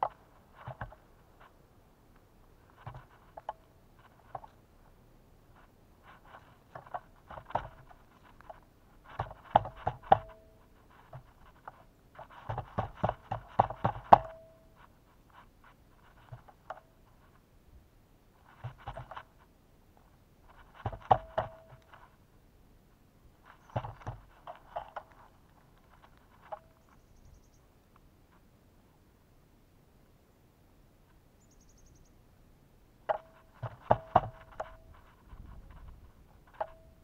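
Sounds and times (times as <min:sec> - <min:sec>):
birds pecking at a feeder: 0:00.0 - 0:17.4, 0:18.3 - 0:22.3, 0:23.3 - 0:28.4, 0:33.0 - 0:37.0.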